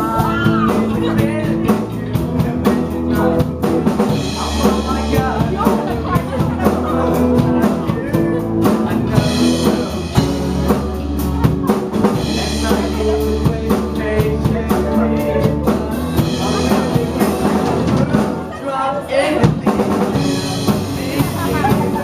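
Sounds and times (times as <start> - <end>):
drum kit beat: 0.0 - 22.0
live band playing pop-rock: 0.0 - 22.0.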